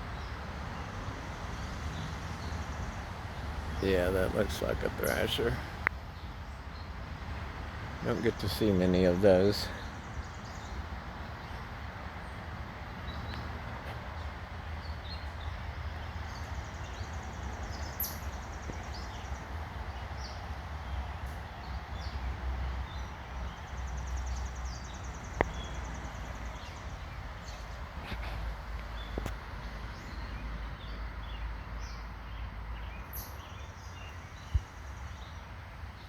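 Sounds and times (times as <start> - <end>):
birds chirping and calling: 1.6 - 6.3, 14.8 - 35.4.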